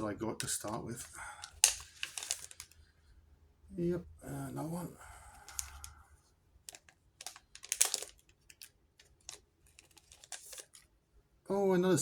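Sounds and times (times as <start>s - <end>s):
trading cards clicking and sliding: 1.4s - 2.8s, 5.4s - 5.9s, 6.7s - 10.9s.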